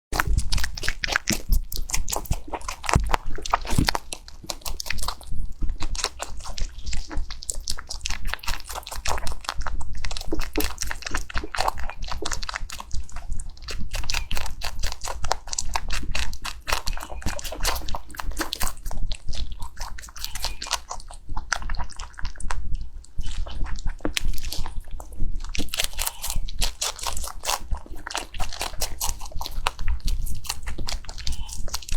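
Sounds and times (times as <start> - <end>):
rabbit chewing crunchy food: 0.1 - 31.9.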